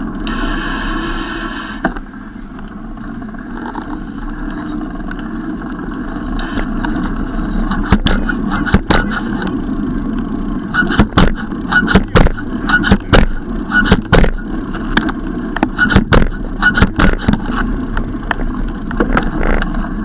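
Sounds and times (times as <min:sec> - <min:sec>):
bicycle rumbling on road: 0:00.0 - 0:20.0
sharp knocks and clicks: 0:07.7 - 0:09.5, 0:10.8 - 0:19.8.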